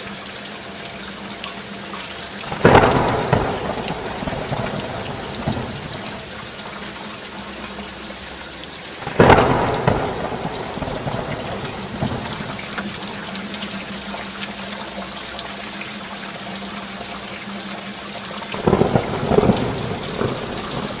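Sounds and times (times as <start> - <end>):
steady rain: 0.0 - 21.0
thunder: 2.4 - 6.7, 9.0 - 13.4, 18.5 - 21.0.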